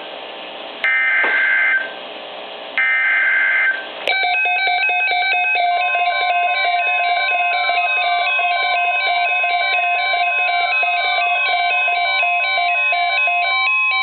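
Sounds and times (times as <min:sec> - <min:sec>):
electronic alarm beeps: 0:00.9 - 0:02.0, 0:02.8 - 0:14.0
warbling digital data tones: 0:04.1 - 0:14.0.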